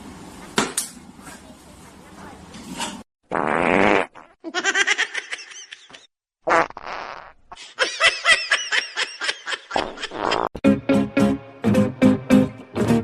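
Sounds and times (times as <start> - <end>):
person laughing: 7.6 - 10.5.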